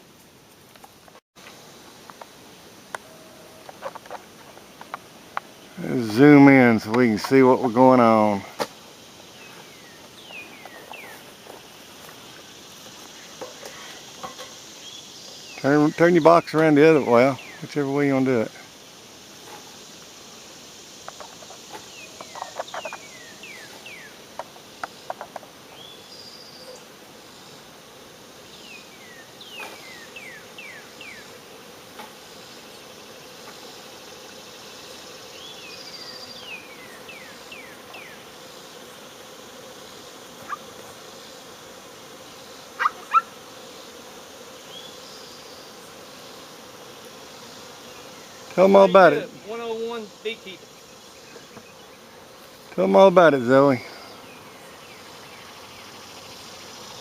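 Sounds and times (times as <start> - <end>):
bee swarm buzzing: 0.0 - 57.0.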